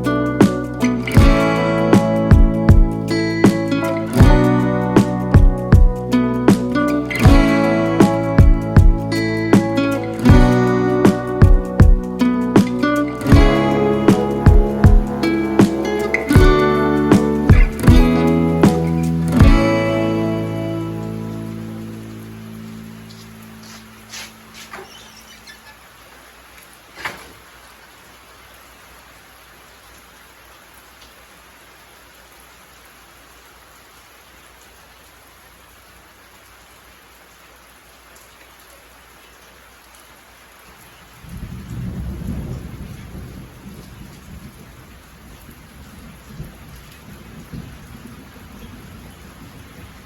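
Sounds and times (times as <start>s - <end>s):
steady rain falling: 0.0s - 50.0s
thunder rumbling: 10.2s - 19.8s, 41.2s - 50.0s.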